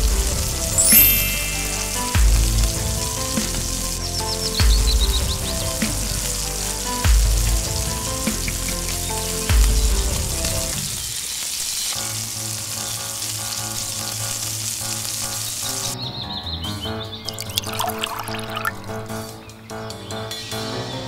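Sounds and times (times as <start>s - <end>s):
background music: 0.0s - 11.2s, 11.9s - 21.0s
crab sizzling in hot oil: 0.0s - 16.0s.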